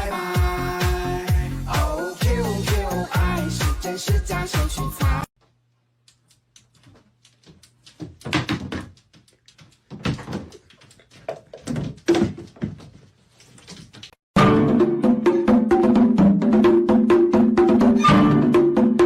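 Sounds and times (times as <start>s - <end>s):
knocks and thuds: 8.0s - 9.1s, 11.6s - 13.0s.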